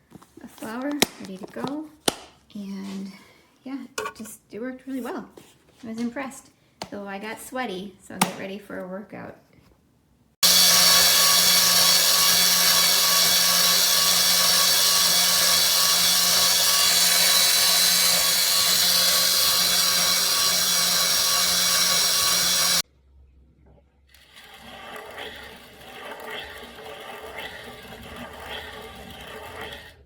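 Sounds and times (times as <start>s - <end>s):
grain mill grinding: 10.4s - 22.8s, 24.1s - 30.0s.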